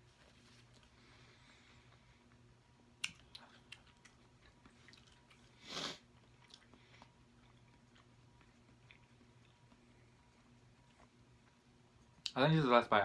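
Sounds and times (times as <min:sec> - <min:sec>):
wet clicks and smacks: 0:03.0 - 0:05.4
mouth chewing: 0:03.0 - 0:12.4.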